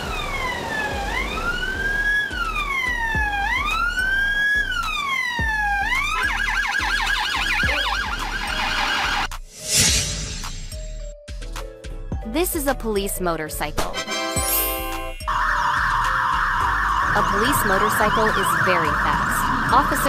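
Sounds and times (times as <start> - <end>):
police siren wailing and yelping: 0.0 - 9.3, 15.2 - 20.0
background music: 0.0 - 20.0.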